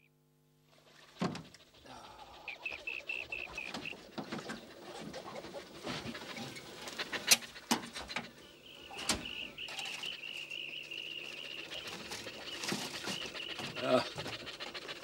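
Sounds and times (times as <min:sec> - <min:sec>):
bird's high-pitched wavering call: 0:02.1 - 0:04.0, 0:08.4 - 0:13.9.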